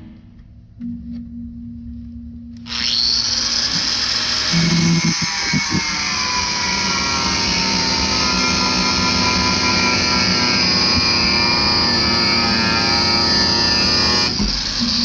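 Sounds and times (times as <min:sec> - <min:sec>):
low hum: 0:00.0 - 0:03.6
electric chop saw running: 0:02.6 - 0:15.0.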